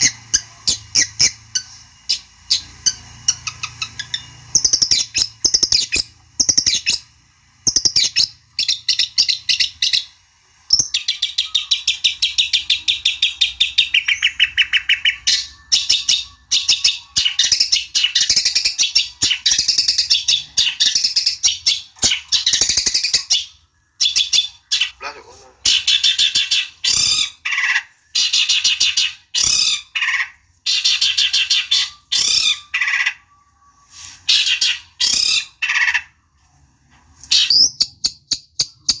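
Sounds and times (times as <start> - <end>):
shrike chattering song: 0.0 - 33.3.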